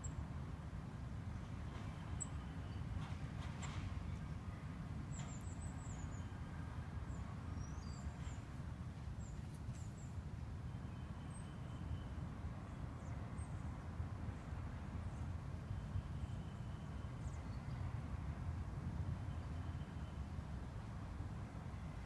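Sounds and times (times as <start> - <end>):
songbirds chirping: 1.7 - 10.2.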